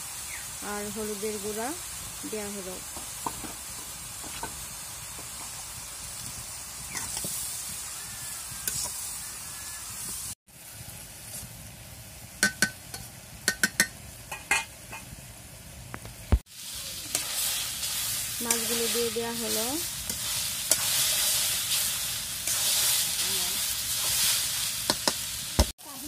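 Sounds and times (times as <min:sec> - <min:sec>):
vegetables sizzling in pan: 0:00.0 - 0:26.0
metal spatula clinking and scraping: 0:20.1 - 0:21.4.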